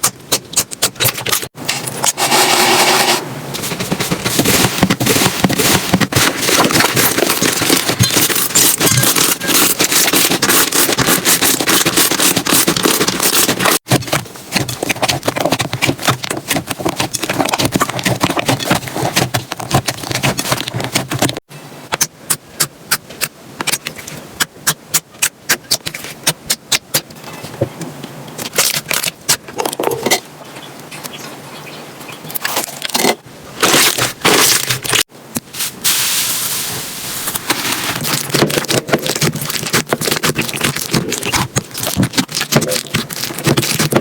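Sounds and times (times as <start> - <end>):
slime crackling and popping: 38.0 - 44.0.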